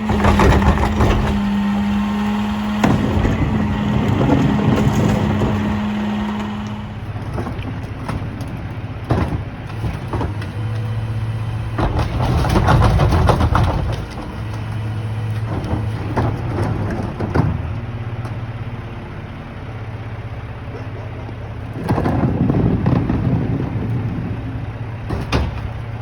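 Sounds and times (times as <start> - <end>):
loud clattering: 0.0 - 10.8, 11.7 - 14.6
metal clanks and knocks: 0.0 - 10.9, 25.0 - 26.0
garbage truck running: 0.0 - 26.0.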